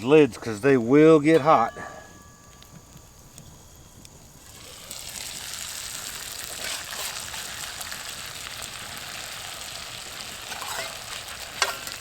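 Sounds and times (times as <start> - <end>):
potatoes sizzling in oil: 2.5 - 12.0
faint scrape in skillet: 6.3 - 7.9, 10.4 - 12.0.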